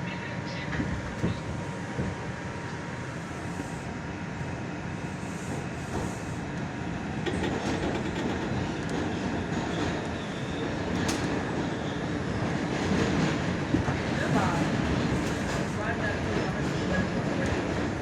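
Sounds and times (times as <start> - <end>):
subway car rumble: 0.0 - 18.0
wheels clicking over rail joints: 7.2 - 10.1.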